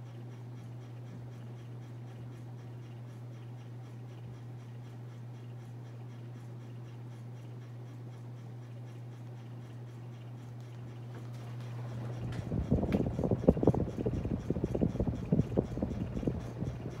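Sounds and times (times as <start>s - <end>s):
ceiling fan motor hum: 0.0s - 17.0s
light scratching tick: 0.1s - 17.0s.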